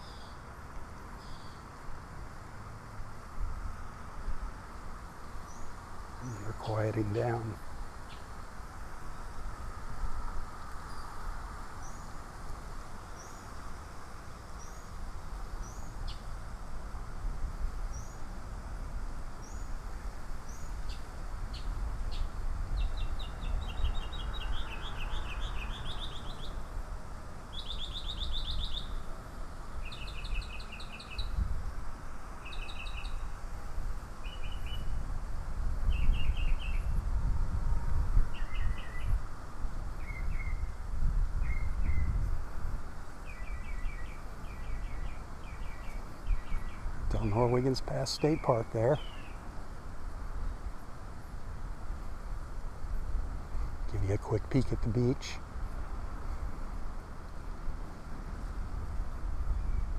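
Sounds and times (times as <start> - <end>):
songbird high rising chirps: 0.0 - 0.4, 1.2 - 1.6, 20.4 - 26.7, 27.4 - 29.2, 29.8 - 31.4, 32.4 - 33.4, 34.2 - 35.0, 35.9 - 37.0, 38.3 - 39.2, 39.9 - 40.8, 41.4 - 42.3, 43.2 - 49.5, 59.4 - 59.9.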